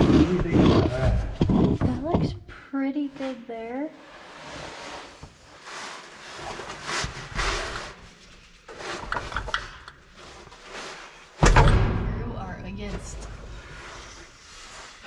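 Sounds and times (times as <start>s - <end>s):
loud heavy thud: 11.4s - 12.6s
metal knocks and rustling: 11.4s - 13.4s.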